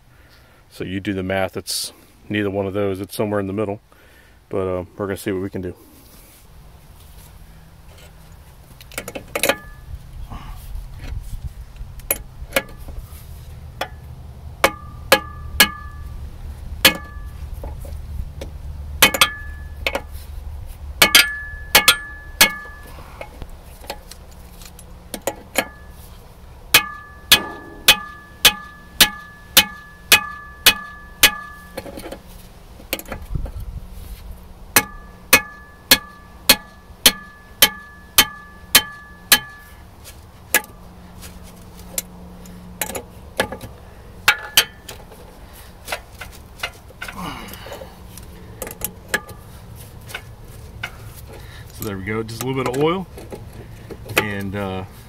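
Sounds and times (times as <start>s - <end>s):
hammer striking metal wrench: 14.6s - 16.0s, 19.0s - 20.0s, 21.0s - 22.8s, 26.7s - 31.8s, 34.8s - 39.6s.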